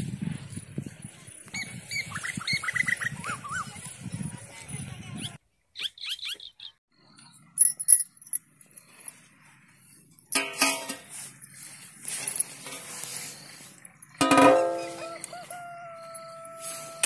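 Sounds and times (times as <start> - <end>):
small birds chirping: 5.0 - 10.3, 11.3 - 14.2.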